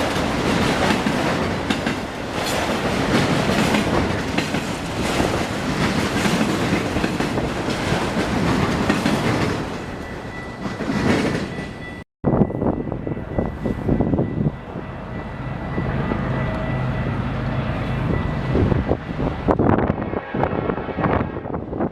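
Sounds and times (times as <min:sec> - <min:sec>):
train wheels clacking on rails: 0:00.0 - 0:12.0.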